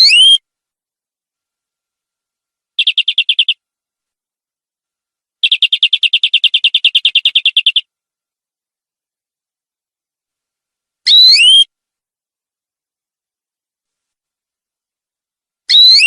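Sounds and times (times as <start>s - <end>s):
canary trilling: 0.0s - 0.4s, 2.8s - 3.6s, 5.4s - 7.9s, 11.1s - 11.7s, 15.7s - 16.0s.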